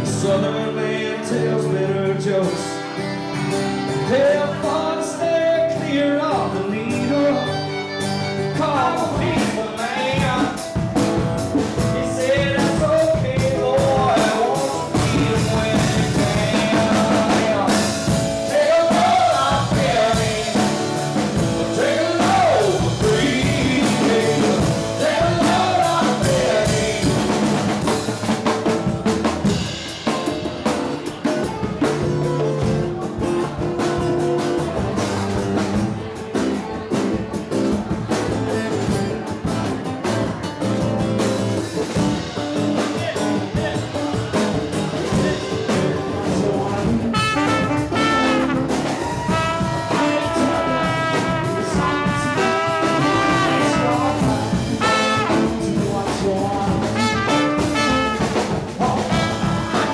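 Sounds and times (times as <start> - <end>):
live band playing: 0.0 - 59.9
brass horn lines: 47.1 - 55.8, 57.0 - 59.9.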